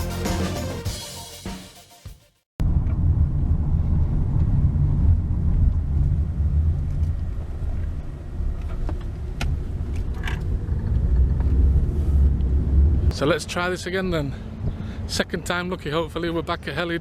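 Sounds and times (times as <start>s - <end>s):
low unsteady rumble: 2.6s - 16.7s.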